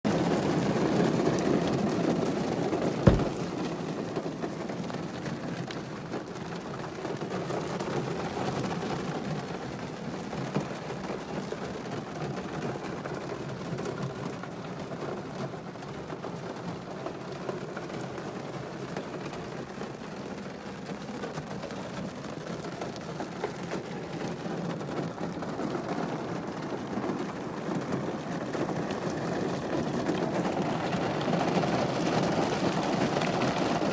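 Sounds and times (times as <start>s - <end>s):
rain on car roof: 0.1s - 33.9s
sharp knock: 3.1s - 3.5s.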